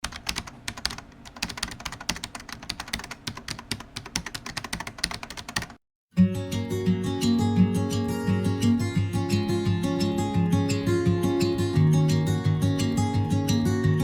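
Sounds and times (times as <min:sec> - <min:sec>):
computer keyboard typing: 0:00.0 - 0:05.8
strummed acoustic guitar: 0:06.2 - 0:14.0.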